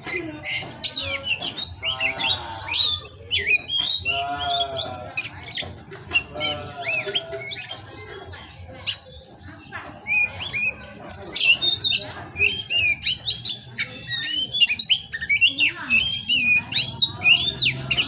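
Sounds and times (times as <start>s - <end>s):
bird singing whistled notes: 0.0s - 18.0s
harsh grating bird calls: 0.0s - 18.0s.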